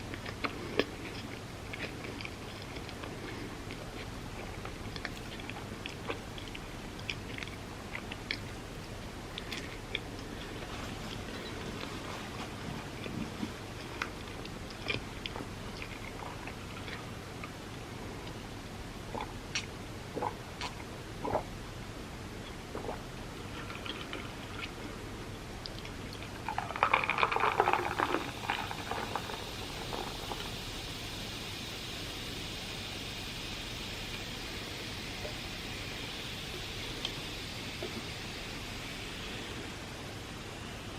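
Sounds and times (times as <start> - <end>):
person chewing food: 0.0 - 18.4, 19.1 - 21.5, 22.4 - 30.6.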